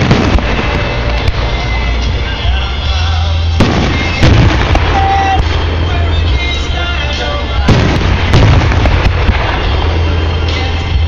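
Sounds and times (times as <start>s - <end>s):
sharp firework reports: 0.0s - 2.1s, 3.4s - 11.0s
fireworks booming rumble: 0.0s - 11.0s.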